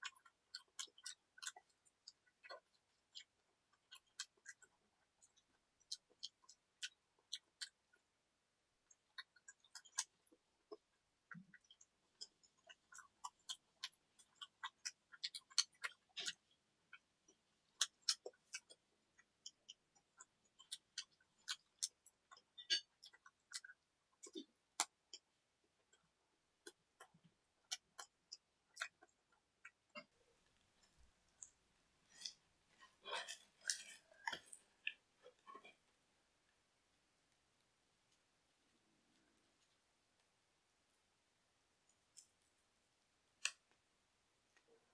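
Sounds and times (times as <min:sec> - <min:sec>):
chewing with mouth clicks: 0:00.0 - 0:08.0, 0:08.9 - 0:25.3, 0:25.9 - 0:30.2, 0:30.8 - 0:35.8.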